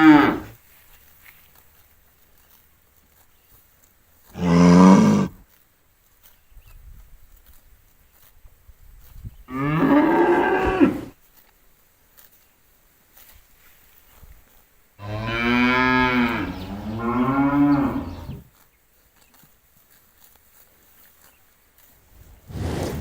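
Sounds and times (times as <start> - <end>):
cow mooing: 0.0 - 0.5, 4.4 - 5.4, 9.5 - 11.1, 15.0 - 18.5.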